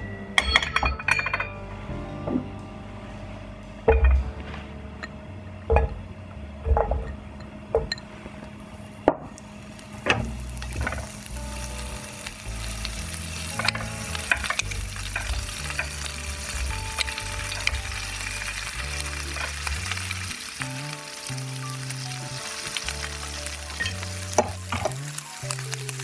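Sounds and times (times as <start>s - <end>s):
meat sizzling in oil: 9.4s - 26.0s.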